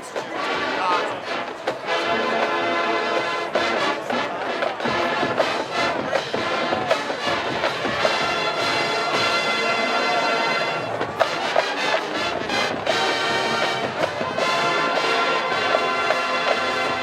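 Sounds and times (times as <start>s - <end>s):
drumline beat: 0.0s - 17.0s
brass sustained chords: 5.0s - 17.0s.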